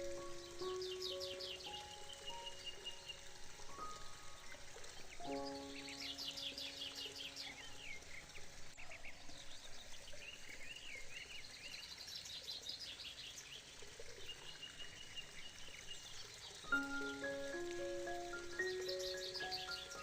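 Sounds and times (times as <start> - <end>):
background hiss: 0.0 - 20.0
birds chirping and trilling: 0.0 - 20.0
mallet-like musical notes: 16.7 - 20.0.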